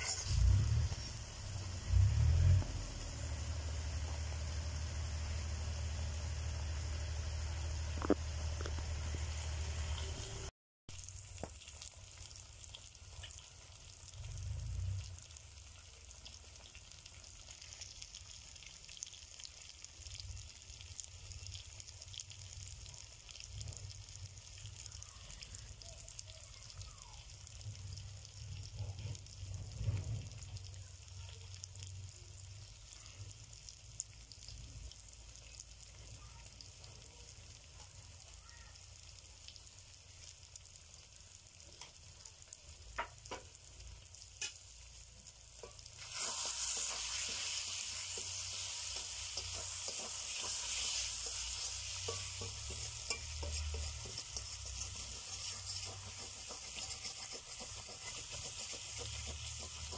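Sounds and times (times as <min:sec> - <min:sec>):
food sizzling and crackling: 0:00.0 - 0:59.9
low rumble: 0:00.3 - 0:10.5.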